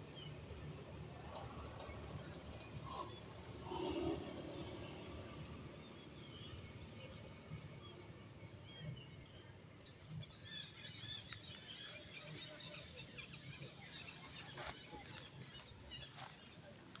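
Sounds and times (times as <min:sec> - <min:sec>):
small birds chirping: 0:08.4 - 0:17.0.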